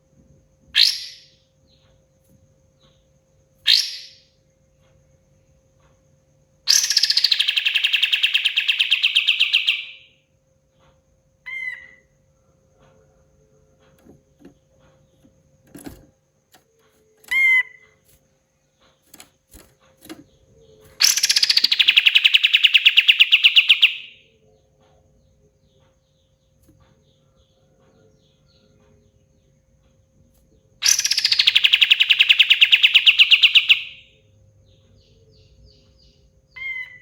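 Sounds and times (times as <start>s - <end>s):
bird rattling trill: 6.7s - 10.1s, 14.0s - 24.2s, 30.8s - 34.0s.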